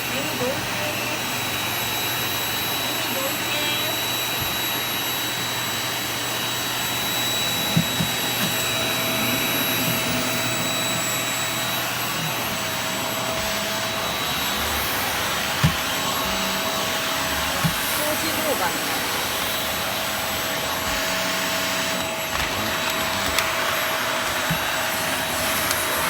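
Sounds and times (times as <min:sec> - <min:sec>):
vacuum cleaner running: 0:00.0 - 0:26.0.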